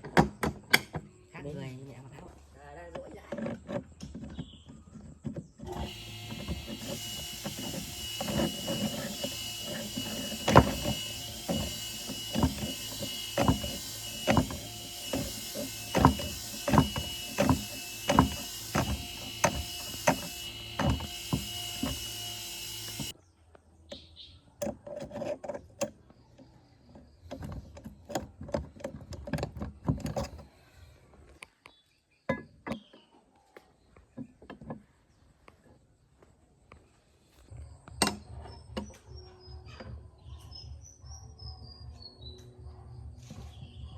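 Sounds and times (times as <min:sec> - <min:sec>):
workshop tool motor whining: 0:05.0 - 0:23.2.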